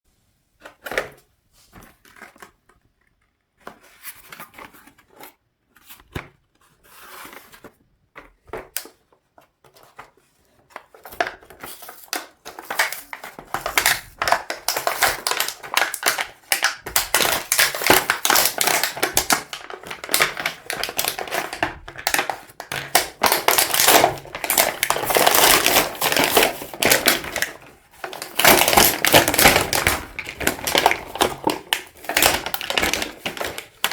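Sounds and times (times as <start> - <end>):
packaging crinkling: 10.8 - 33.9.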